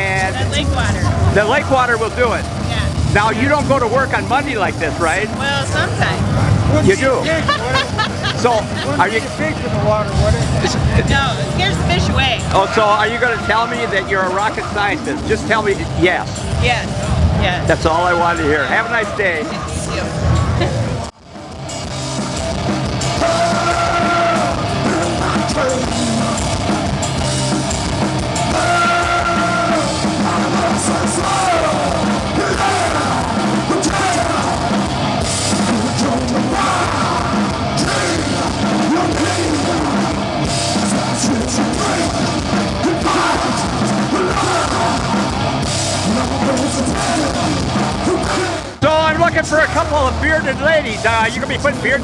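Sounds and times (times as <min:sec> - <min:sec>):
drum kit: 0:00.0 - 0:52.0
loud rock music: 0:00.0 - 0:52.0
person singing: 0:07.2 - 0:09.4, 0:23.0 - 0:26.9, 0:28.4 - 0:48.8.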